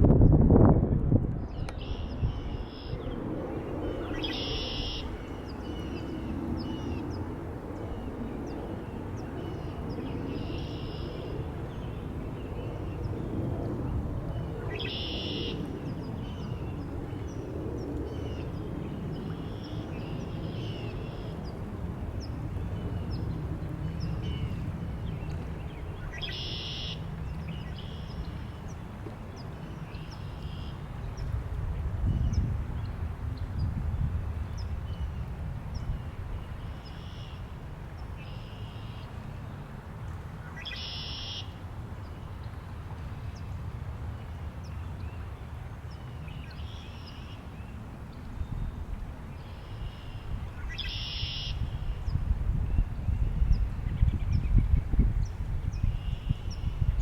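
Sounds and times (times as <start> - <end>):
steady wind: 0.0 - 57.0
wild birds singing: 1.5 - 13.3, 14.4 - 21.6, 22.2 - 31.3, 40.4 - 41.5, 49.4 - 57.0.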